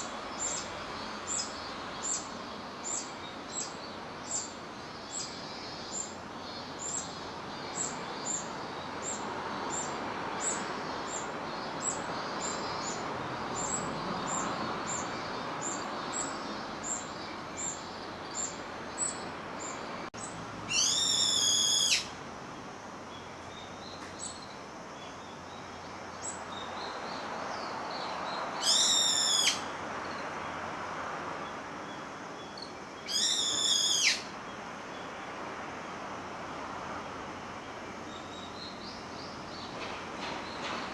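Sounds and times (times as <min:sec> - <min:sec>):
bird calling: 0:20.2 - 0:22.2, 0:28.6 - 0:29.7, 0:33.0 - 0:34.3.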